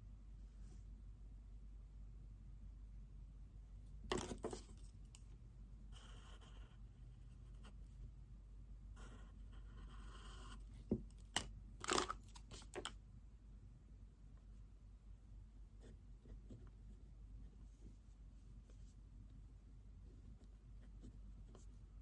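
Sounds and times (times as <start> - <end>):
pen writing on paper: 5.9 - 7.8, 8.9 - 10.8, 20.2 - 21.8.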